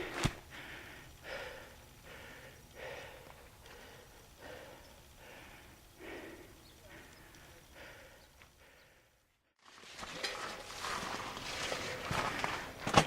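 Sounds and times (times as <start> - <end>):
person breathing hard: 0.0 - 9.4.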